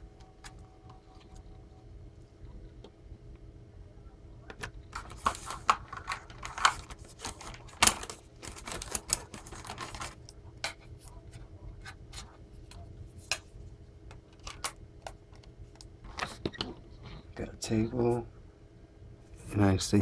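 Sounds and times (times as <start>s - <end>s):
faint room hum: 0.0s - 20.0s
package rustling and clicking: 4.5s - 10.8s.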